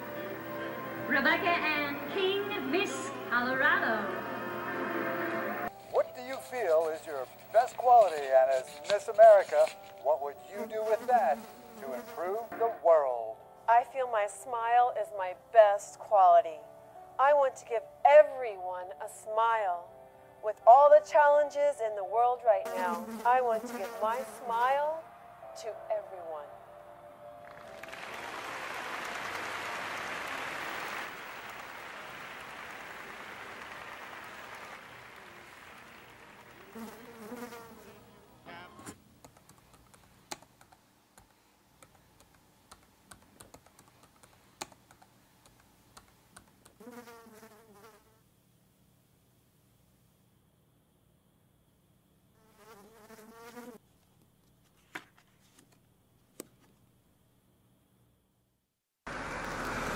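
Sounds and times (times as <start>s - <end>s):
audience applause: 27.4s - 37.1s, 59.1s - 59.9s
computer mouse clicking: 39.2s - 46.8s.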